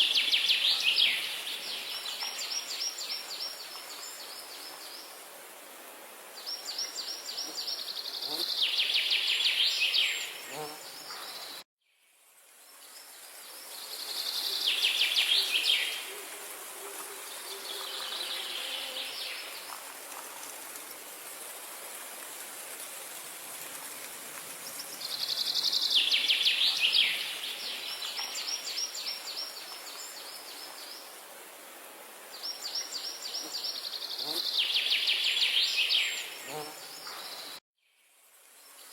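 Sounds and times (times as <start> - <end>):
steady background hiss: 0.0 - 38.9
songbird singing: 6.4 - 12.1, 12.9 - 16.2, 24.6 - 31.1, 32.4 - 38.0.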